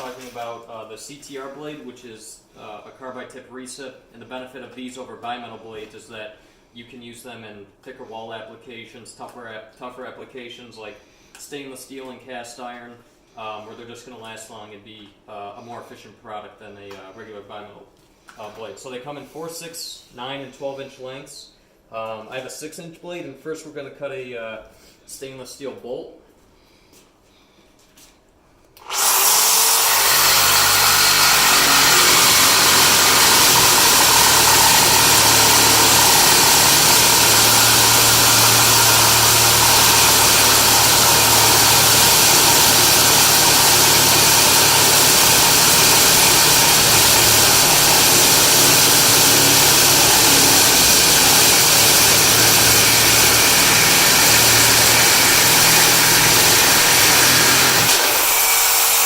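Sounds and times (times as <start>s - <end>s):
reciprocating saw cutting metal bolt: 28.8s - 59.0s.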